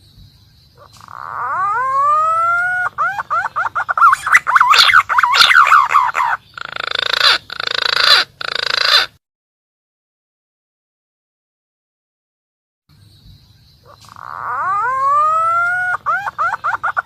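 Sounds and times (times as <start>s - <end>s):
pigeon whistling song: 0.9s - 6.4s, 13.9s - 17.0s
harsh raspy bird bursts: 0.9s - 9.2s.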